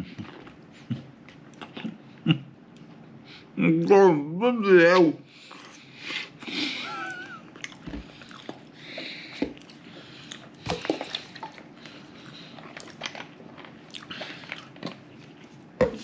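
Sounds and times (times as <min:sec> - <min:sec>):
person chewing with mouth smacks: 0:00.0 - 0:02.0, 0:05.5 - 0:16.0.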